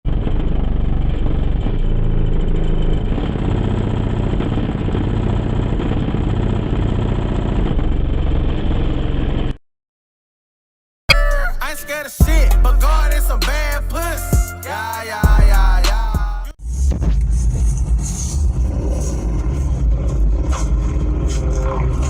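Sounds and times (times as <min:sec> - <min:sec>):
car subwoofers playing deep bass: 0:12.2 - 0:14.6, 0:15.2 - 0:22.0.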